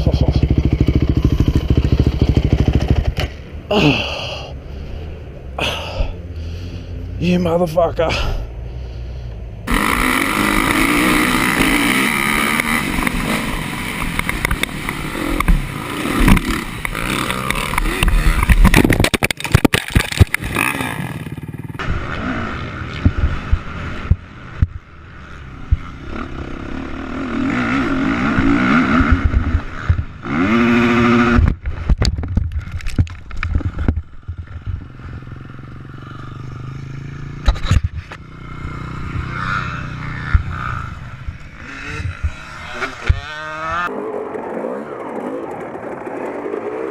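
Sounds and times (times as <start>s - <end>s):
dirt bike engines revving: 0.0s - 31.9s, 32.6s - 46.9s
knocks and scraping: 9.7s - 21.4s, 31.0s - 35.3s, 37.4s - 38.2s.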